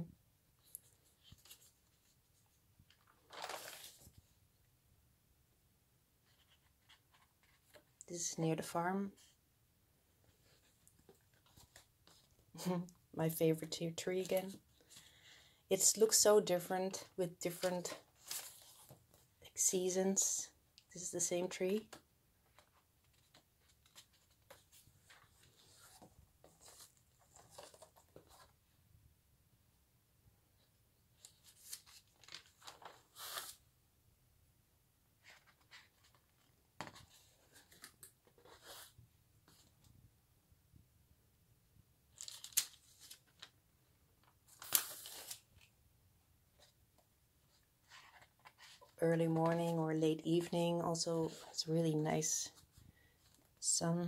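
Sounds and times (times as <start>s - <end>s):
album pages rustling and tapping: 0.7s - 2.2s, 2.8s - 4.3s, 10.2s - 12.4s, 17.5s - 19.3s, 21.8s - 28.6s, 31.2s - 33.6s, 35.2s - 39.8s, 42.1s - 43.6s, 44.2s - 45.7s, 46.5s - 50.5s.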